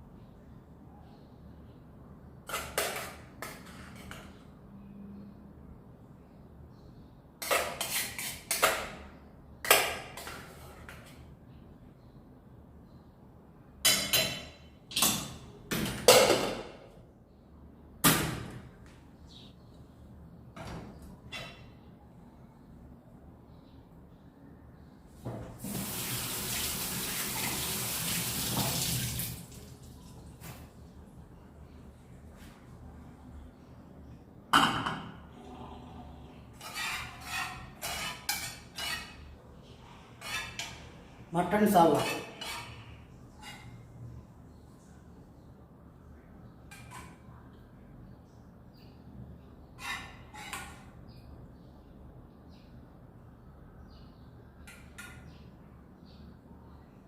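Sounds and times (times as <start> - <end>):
utensil scraping plate: 7.4 - 8.9, 36.6 - 39.3, 40.2 - 40.9, 41.8 - 43.8, 49.7 - 50.9.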